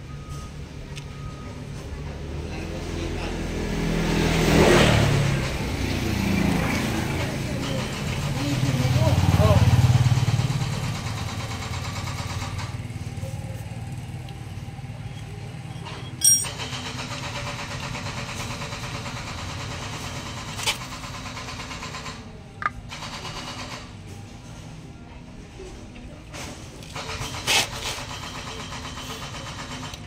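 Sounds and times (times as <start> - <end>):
engine low rumble: 0.0 - 30.0
sharp metallic clank: 15.8 - 16.8.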